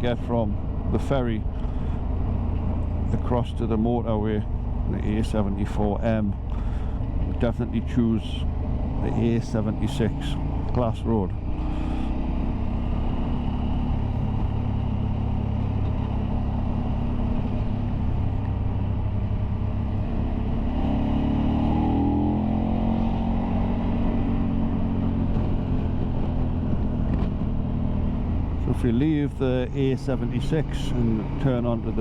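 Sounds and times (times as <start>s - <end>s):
motorcycle engine accelerating: 0.0s - 32.0s
wind rumble: 0.0s - 32.0s.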